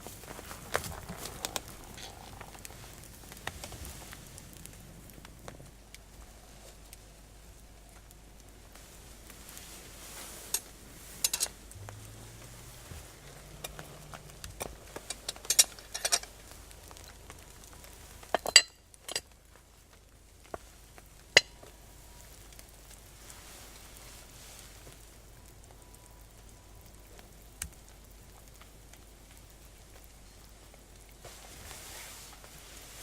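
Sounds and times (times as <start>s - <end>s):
metal utensils clinking on cookware: 11.2s - 11.6s, 15.1s - 16.3s, 18.4s - 19.3s.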